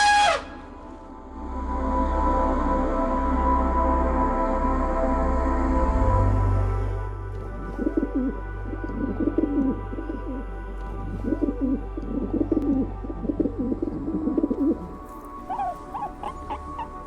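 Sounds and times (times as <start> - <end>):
background music: 0.0 - 17.0
bird cooing: 7.7 - 8.4, 9.0 - 10.5, 11.2 - 17.0.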